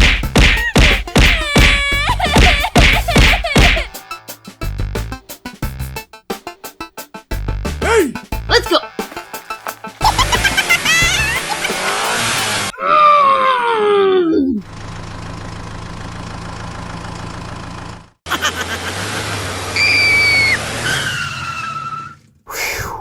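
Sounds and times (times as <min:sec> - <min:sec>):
vehicle engine: 0:14.6 - 0:21.8.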